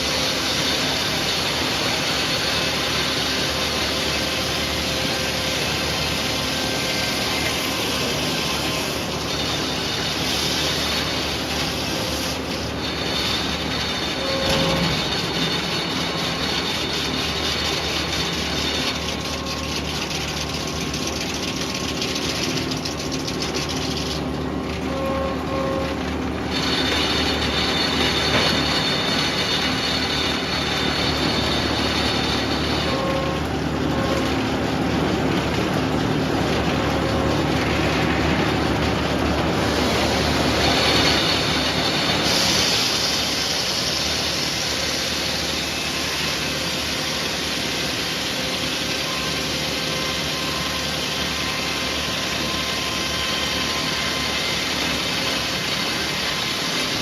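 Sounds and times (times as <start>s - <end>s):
saw blade whine: 0.0s - 57.0s
sawmill machine noise: 0.0s - 57.0s.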